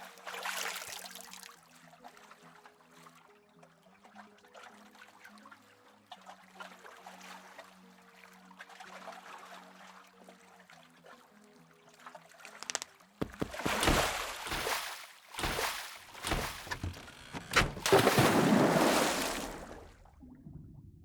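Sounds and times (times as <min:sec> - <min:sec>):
quiet music with low held notes: 0:00.0 - 0:18.8
rushing splashing water: 0:12.6 - 0:17.0, 0:17.6 - 0:19.9.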